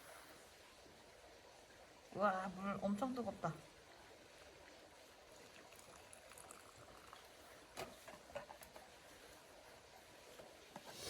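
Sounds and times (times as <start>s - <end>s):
hot water bubbling: 2.2s - 11.0s.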